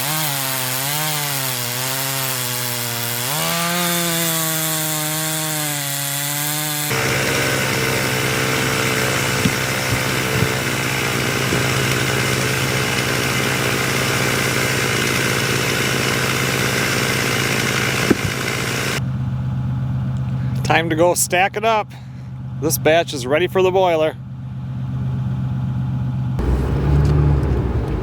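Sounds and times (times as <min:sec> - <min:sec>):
chainsaw cutting logs: 0:00.0 - 0:19.0
chainsaw engine running: 0:00.0 - 0:19.0, 0:21.8 - 0:23.0.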